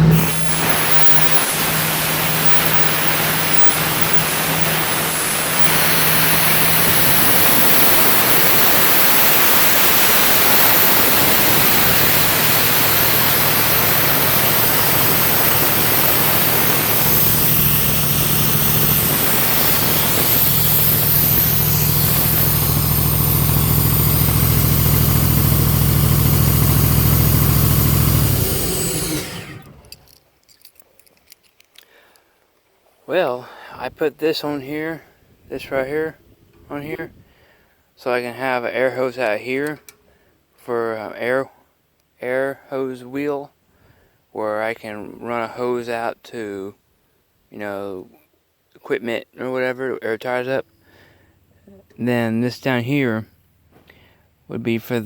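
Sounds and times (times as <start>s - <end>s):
loud rushing air hiss: 0.0s - 29.9s
compressor engine drone: 0.0s - 30.0s.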